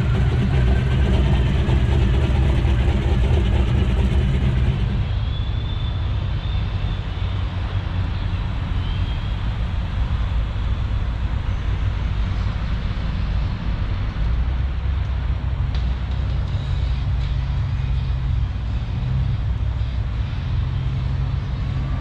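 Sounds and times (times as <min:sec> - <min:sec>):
car engine running: 0:00.0 - 0:05.5.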